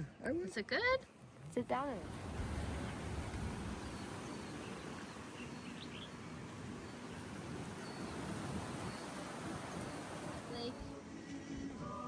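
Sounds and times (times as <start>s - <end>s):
faint bird chirps: 7.8s - 10.7s.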